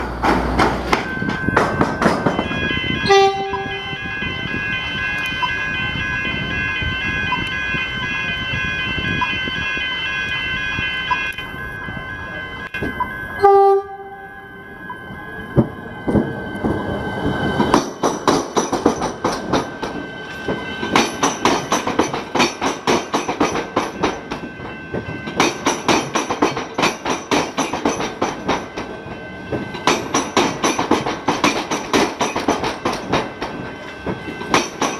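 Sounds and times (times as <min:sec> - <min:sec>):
short horn blasts: 0:03.0 - 0:04.1
wheels clacking over crossing: 0:17.6 - 0:34.9.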